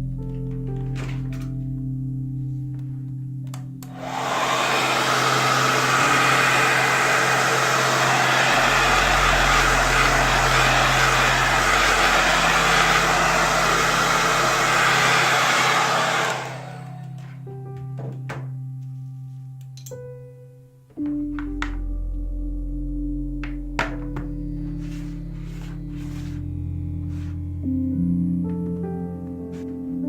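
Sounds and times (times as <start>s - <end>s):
quiet ambient music: 0.0s - 4.0s, 17.0s - 30.0s
hot-air blower running: 3.8s - 17.4s, 24.8s - 26.4s, 27.1s - 27.4s.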